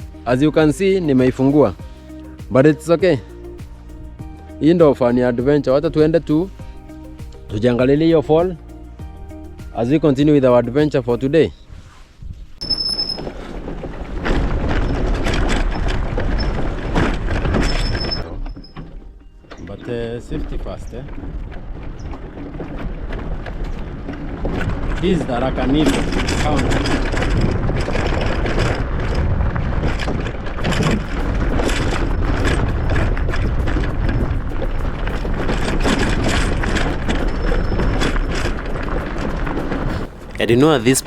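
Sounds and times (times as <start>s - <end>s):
wind buffeting microphone: 0.0s - 41.0s
motorcycle engine running: 21.2s - 41.0s.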